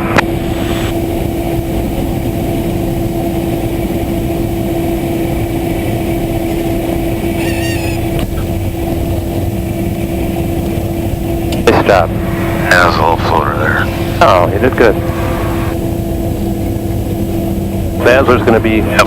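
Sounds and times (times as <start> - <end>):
propeller plane engine droning: 0.0 - 19.0
warbling high tone: 7.3 - 8.2.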